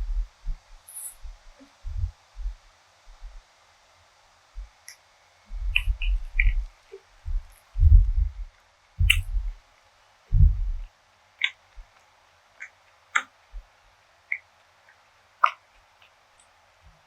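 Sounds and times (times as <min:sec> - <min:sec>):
mouth clicks: 0:04.9 - 0:08.2, 0:09.0 - 0:09.5, 0:11.4 - 0:11.8, 0:12.6 - 0:13.4, 0:14.3 - 0:16.5.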